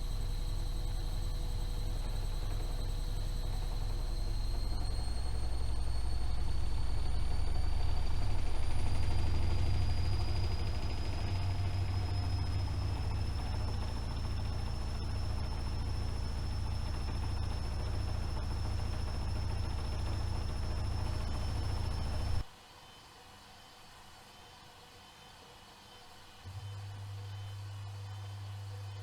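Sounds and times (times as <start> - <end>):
washing machine spinning: 0.0 - 22.4.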